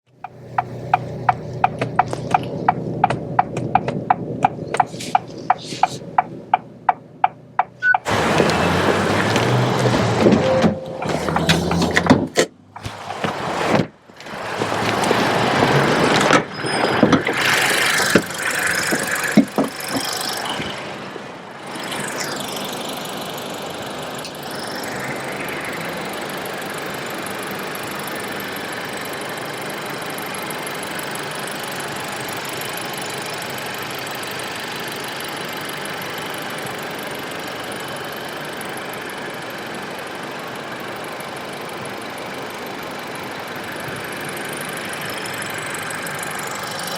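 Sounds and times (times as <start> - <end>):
car engine idling: 0.1 - 16.2, 17.0 - 46.9
irregular knocks: 0.2 - 5.3, 18.0 - 20.2.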